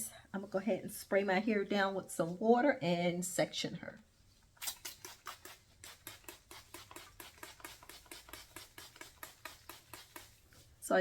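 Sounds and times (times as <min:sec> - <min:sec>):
spray bottle squirts: 0:04.6 - 0:10.4.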